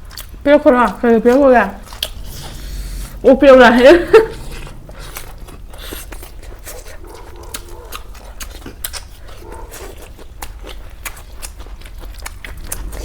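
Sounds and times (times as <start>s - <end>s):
chewing with wet mouth clicks: 0.0s - 2.2s, 5.1s - 13.0s.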